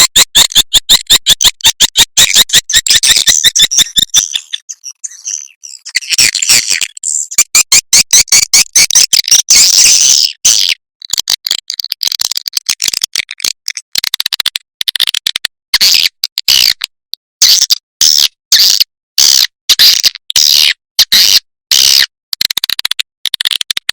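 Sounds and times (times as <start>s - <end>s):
swiftlet twittering chirps: 2.0s - 7.5s
rapid clicks: 11.0s - 16.9s, 22.3s - 23.9s.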